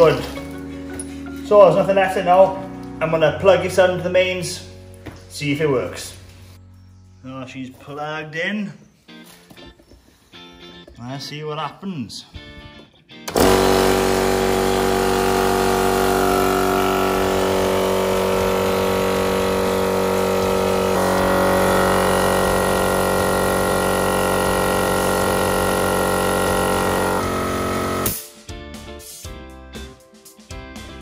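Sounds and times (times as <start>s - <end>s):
electric air compressor running: 13.3s - 28.3s.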